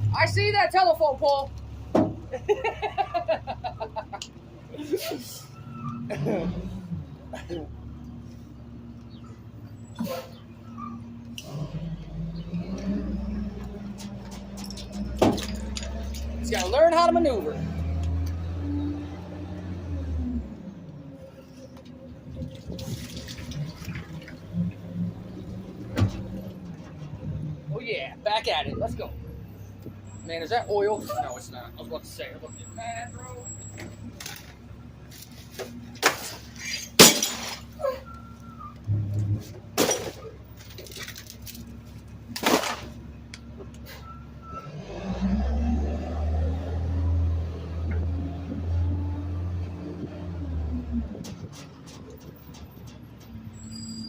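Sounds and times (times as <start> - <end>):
truck engine revving and rumbling: 0.0 - 54.0
trash crashing into truck hopper: 14.9 - 16.5, 35.9 - 37.8, 38.9 - 41.4, 42.3 - 43.0.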